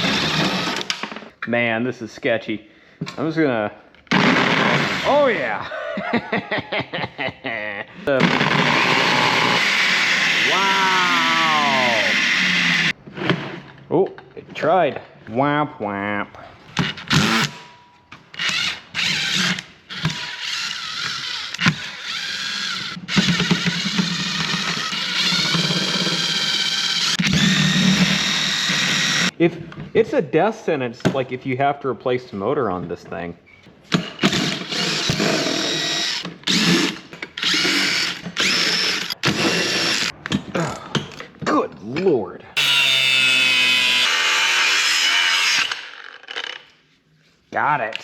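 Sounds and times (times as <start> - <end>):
power driver running: 0.0 - 1.0, 8.2 - 12.9, 18.4 - 29.3, 34.3 - 40.1.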